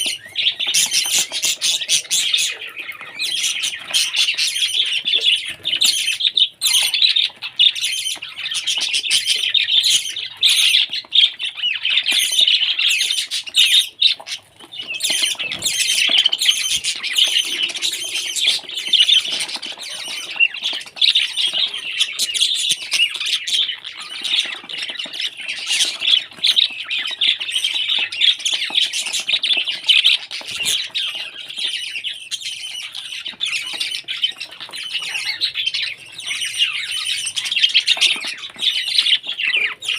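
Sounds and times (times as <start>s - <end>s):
parrots chattering and squawking: 0.0s - 39.9s.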